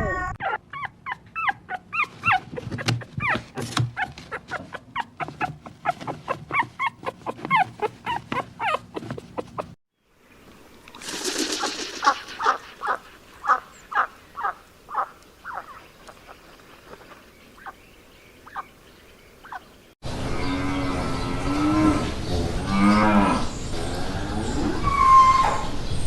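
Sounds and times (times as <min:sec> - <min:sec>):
chicken clucking: 0:01.1 - 0:09.8.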